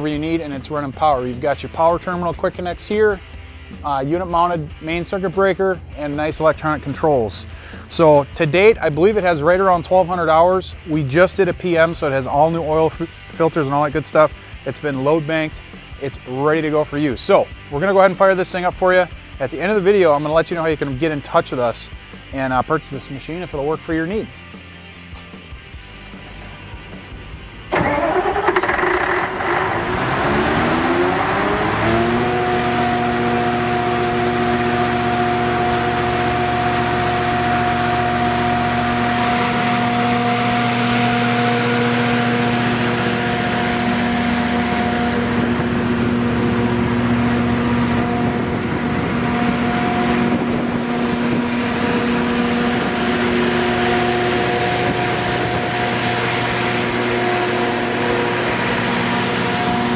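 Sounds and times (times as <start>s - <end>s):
diesel generator engine starting: 26.1s - 59.9s.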